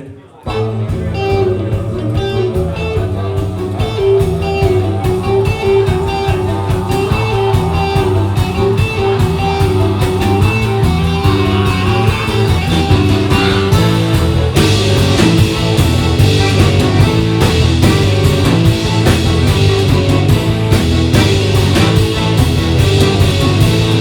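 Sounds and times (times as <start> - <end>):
bass guitar: 0.0 - 24.0
steady drum beat: 0.0 - 24.0
guitar melody: 0.5 - 24.0.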